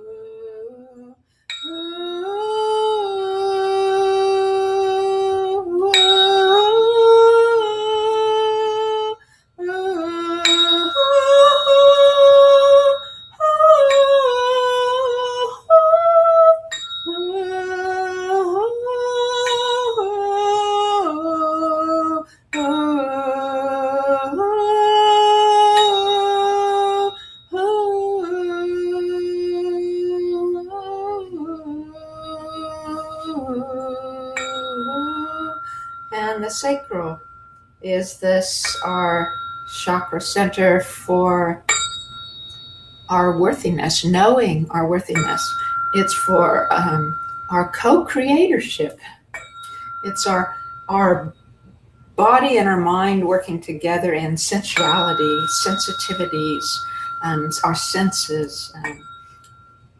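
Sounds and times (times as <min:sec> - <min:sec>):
woman singing long vowel: 0:00.0 - 0:37.2, 0:37.8 - 0:41.7, 0:43.1 - 0:49.0.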